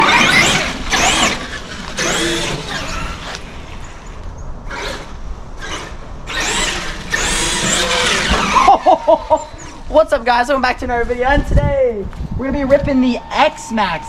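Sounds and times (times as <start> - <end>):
electric toy truck motor whining: 0.0 - 9.9.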